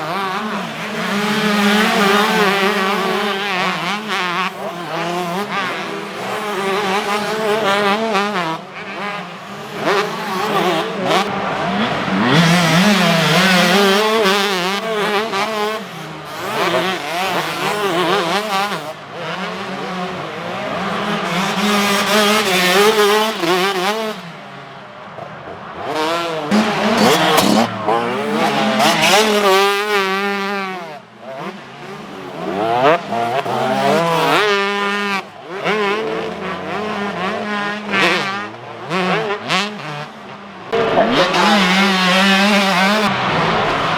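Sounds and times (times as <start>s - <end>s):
motocross bikes revving: 0.0s - 43.9s.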